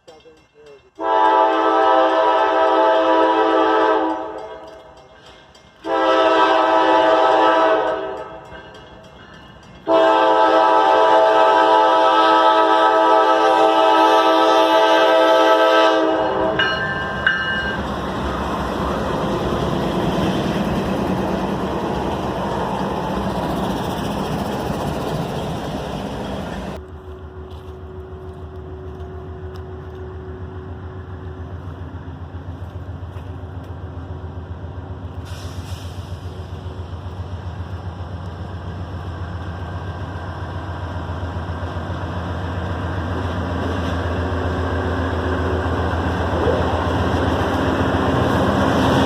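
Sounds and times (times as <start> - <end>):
train passing rumble: 0.0 - 49.0
locomotive air horn blasts: 1.0 - 4.4, 5.8 - 8.4, 9.9 - 16.8.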